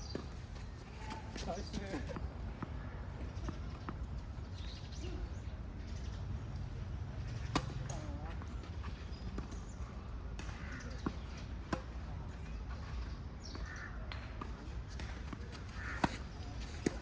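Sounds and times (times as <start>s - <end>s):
tennis ball hit and bouncing: 7.4s - 8.1s, 14.1s - 17.0s.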